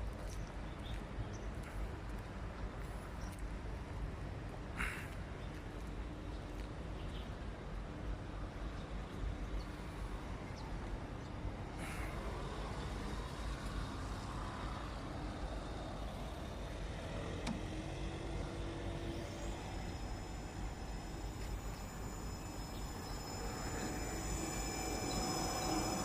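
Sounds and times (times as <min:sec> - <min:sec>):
low rumble of vehicle noise: 0:00.0 - 0:26.0
high whine: 0:18.2 - 0:26.0.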